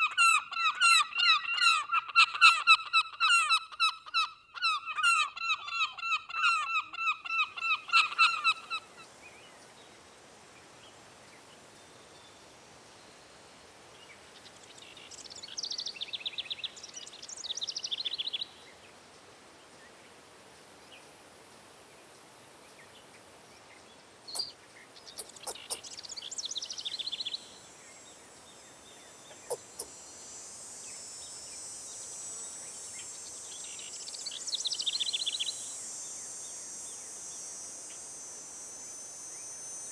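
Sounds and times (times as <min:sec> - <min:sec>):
faint high hiss: 0:07.3 - 0:39.9
songbird trilling: 0:24.3 - 0:27.6, 0:29.0 - 0:30.0
geese honking: 0:25.2 - 0:25.8.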